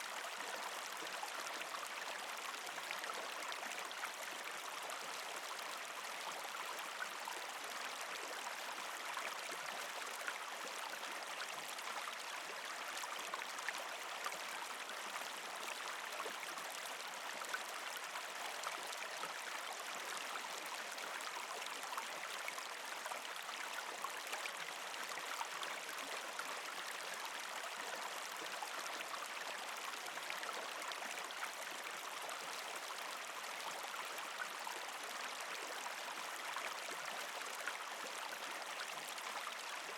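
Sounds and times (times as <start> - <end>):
creek flowing over rocks: 0.0 - 39.9.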